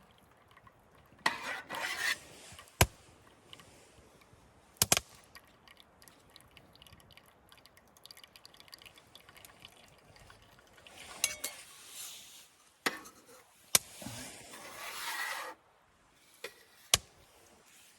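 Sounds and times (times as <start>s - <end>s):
liquid pouring into cup: 5.2s - 11.4s
cup clinking: 11.1s - 11.7s.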